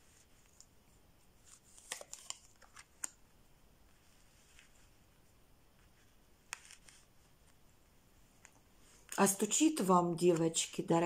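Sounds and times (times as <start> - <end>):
cards clicking and snapping: 1.5 - 3.2.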